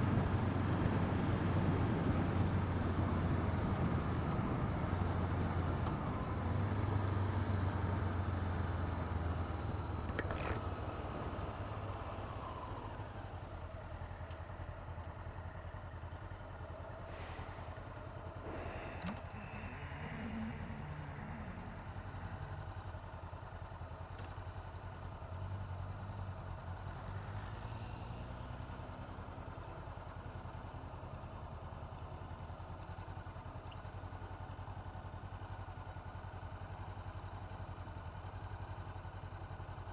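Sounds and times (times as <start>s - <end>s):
motorcycle engine running: 13.2s - 27.1s.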